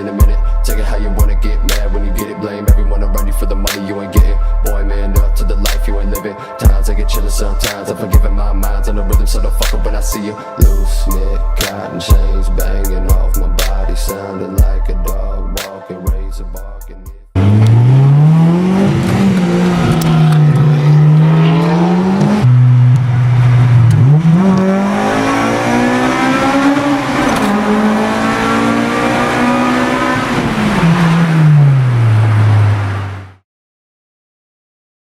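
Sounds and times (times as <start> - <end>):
car engine revving under load: 17.3 - 33.4.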